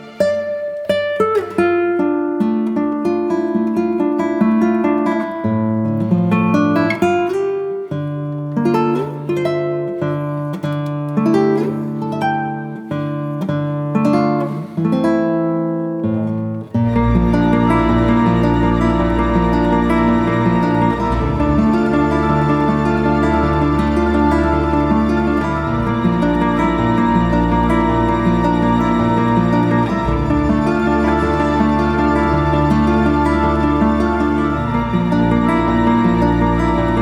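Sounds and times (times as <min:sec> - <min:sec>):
plucked acoustic guitar: 0:00.0 - 0:37.0
held bass notes: 0:16.9 - 0:37.0.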